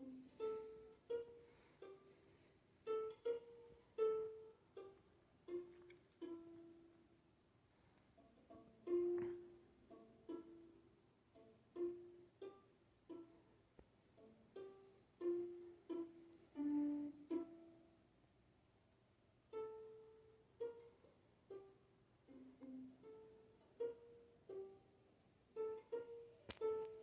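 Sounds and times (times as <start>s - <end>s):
plucked string notes: 0.0s - 2.2s, 2.8s - 7.0s, 8.2s - 13.5s, 14.2s - 17.8s.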